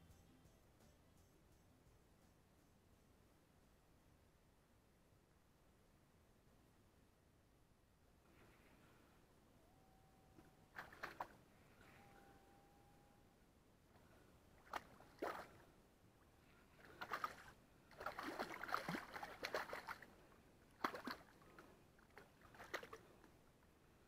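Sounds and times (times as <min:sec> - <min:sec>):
faint water sloshing and splashing: 0:10.3 - 0:12.3, 0:13.8 - 0:24.0.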